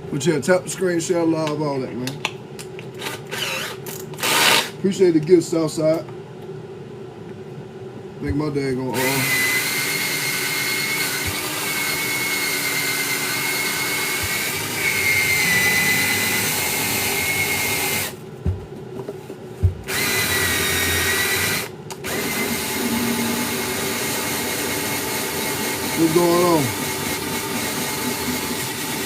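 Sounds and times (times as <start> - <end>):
power tool motor whining: 3.0 - 4.8, 9.0 - 18.2, 19.9 - 29.0.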